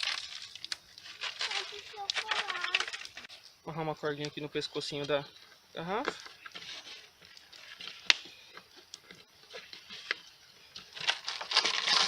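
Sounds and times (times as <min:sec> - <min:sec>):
plastic crinkling: 0:00.0 - 0:03.4, 0:10.8 - 0:12.0.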